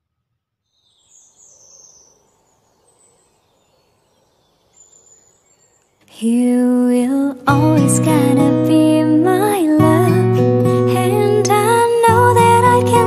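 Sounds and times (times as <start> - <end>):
high thin bird chirps: 0.7 - 6.2
faint background hiss: 0.7 - 13.0
guitar music: 7.4 - 13.0.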